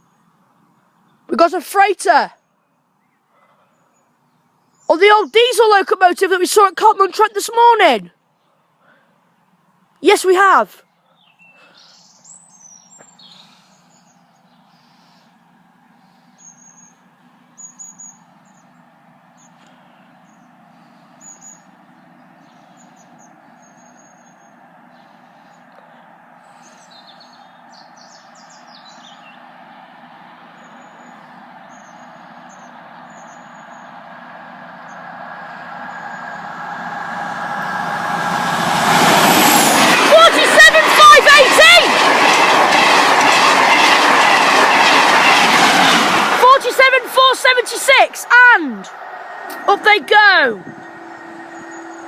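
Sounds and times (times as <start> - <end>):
small birds chirping: 10.8 - 15.4, 16.0 - 34.0
diesel locomotive hum: 11.6 - 52.0.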